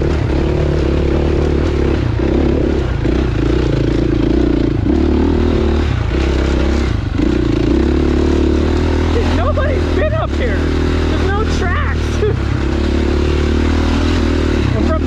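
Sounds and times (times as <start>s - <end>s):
dirt bike engine: 0.0s - 15.0s.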